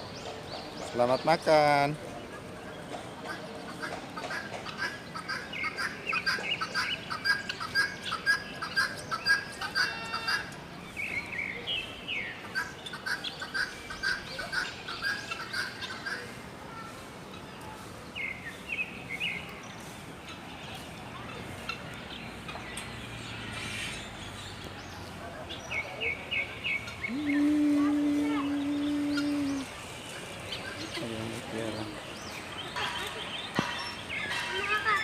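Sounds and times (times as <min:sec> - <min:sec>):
small birds chirping: 0:17.3 - 0:35.0.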